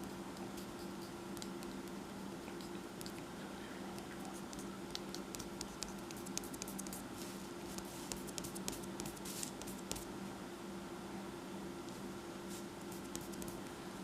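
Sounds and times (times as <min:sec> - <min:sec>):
faint steady hum: 0:00.0 - 0:14.0
pencil scratching on paper: 0:05.3 - 0:07.0, 0:07.7 - 0:10.0, 0:12.9 - 0:13.6.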